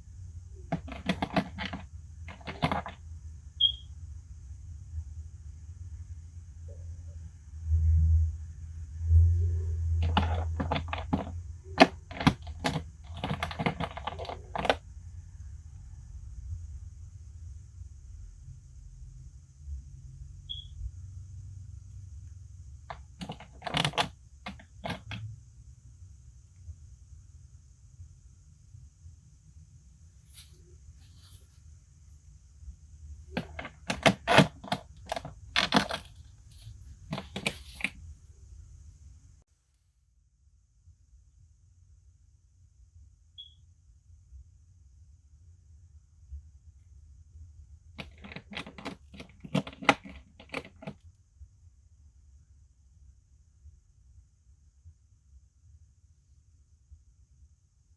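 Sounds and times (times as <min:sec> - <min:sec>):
small hard parts clicking: 0:00.7 - 0:03.0, 0:10.0 - 0:14.8, 0:22.9 - 0:25.3, 0:33.3 - 0:36.3, 0:48.0 - 0:51.0.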